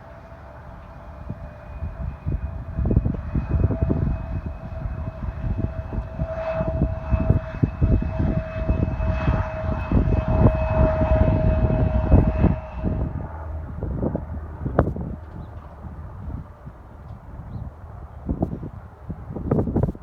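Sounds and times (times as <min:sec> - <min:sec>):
aircraft engines whining: 0:00.0 - 0:20.0
wind buffeting microphone: 0:00.2 - 0:20.0.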